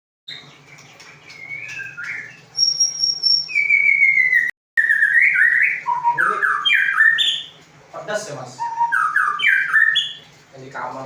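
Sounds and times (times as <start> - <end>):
songbird whistling: 1.3 - 7.6, 8.5 - 10.2.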